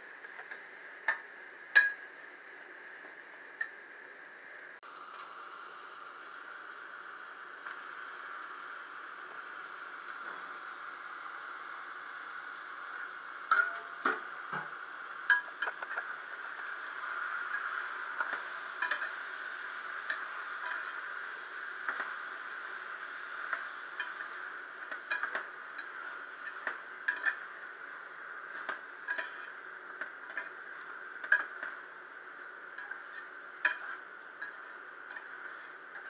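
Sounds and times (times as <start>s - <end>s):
chicken sizzling in a pan: 4.8s - 36.0s
metal spatula scraping a pan: 17.5s - 19.2s, 20.0s - 21.0s, 24.9s - 27.5s, 28.6s - 30.6s, 32.8s - 36.0s.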